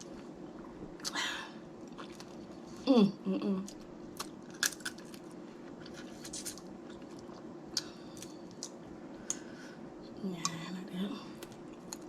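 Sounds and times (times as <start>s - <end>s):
crab shells cracking: 4.2s - 5.2s.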